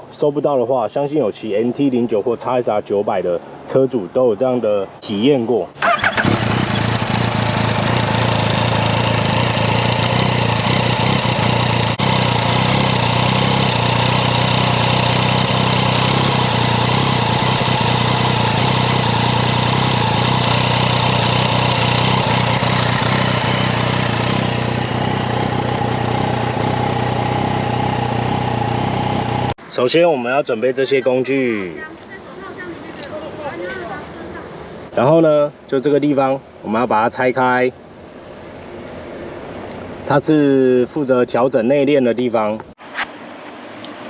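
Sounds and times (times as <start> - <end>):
motorcycle engine idling: 5.8 - 29.6.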